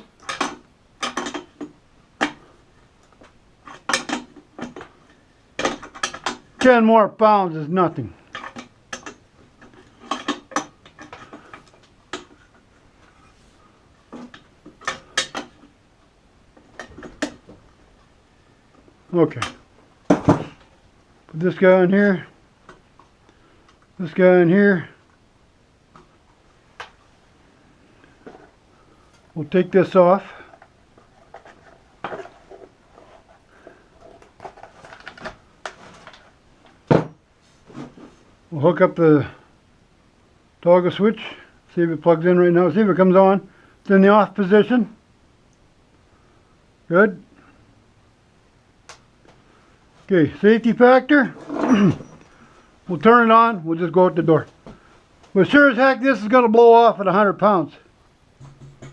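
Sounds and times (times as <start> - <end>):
tools handled on a workbench: 0.0 - 6.8, 8.2 - 13.4, 14.1 - 15.8, 16.6 - 17.6, 30.2 - 38.2, 58.4 - 58.9.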